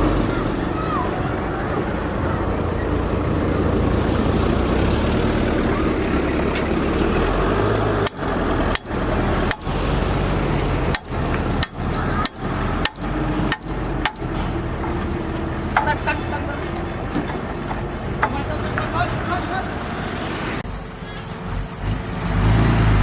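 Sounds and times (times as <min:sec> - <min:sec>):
heavy diesel engine running: 0:00.0 - 0:23.0
sharp metallic knocks: 0:08.0 - 0:16.0, 0:17.2 - 0:18.5.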